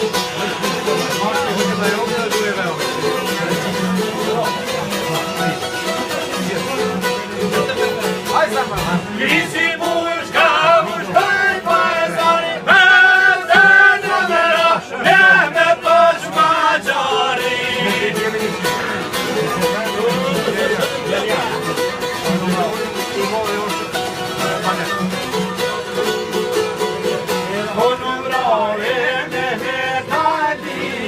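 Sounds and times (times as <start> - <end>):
plucked string instruments: 0.0 - 31.0
man singing: 9.0 - 19.2, 27.4 - 31.0.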